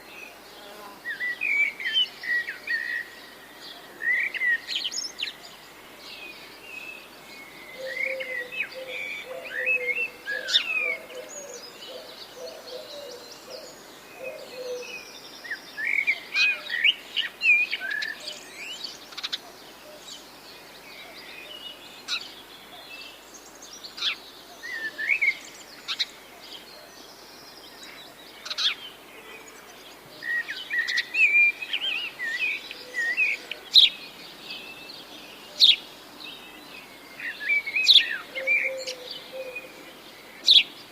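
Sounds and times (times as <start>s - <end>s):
songbirds chirping: 0.0s - 40.9s
lower bird call: 7.4s - 15.2s, 37.2s - 40.8s.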